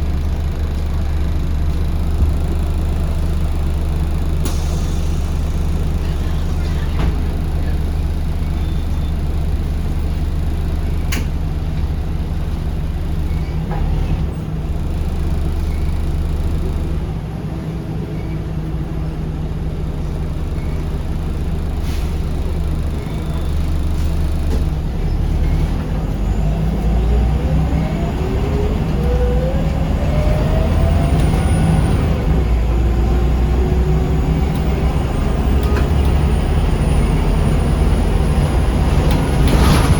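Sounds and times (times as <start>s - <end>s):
bus diesel engine droning: 0.0s - 39.9s
rising engine whine: 24.9s - 39.9s.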